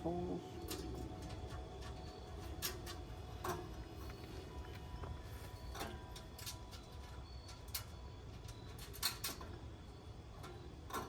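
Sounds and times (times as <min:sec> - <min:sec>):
metal grill parts clicking: 0:00.6 - 0:03.7, 0:05.7 - 0:09.7, 0:10.4 - 0:11.0.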